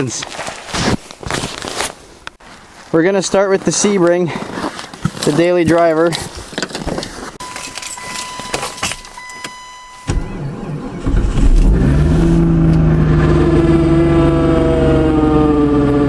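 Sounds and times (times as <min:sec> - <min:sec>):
car engine cranking and idling: 0:07.6 - 0:16.0.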